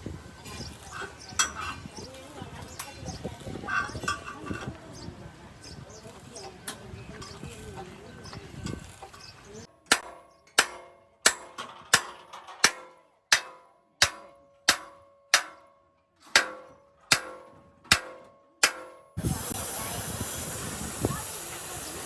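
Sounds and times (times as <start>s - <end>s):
hammer striking steel: 9.8s - 19.5s
steady hiss: 19.2s - 22.0s.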